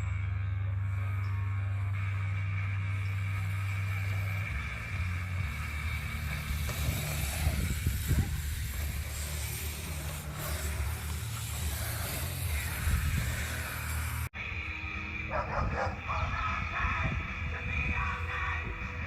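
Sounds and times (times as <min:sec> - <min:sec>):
bike tyres on dirt: 0:00.0 - 0:19.0.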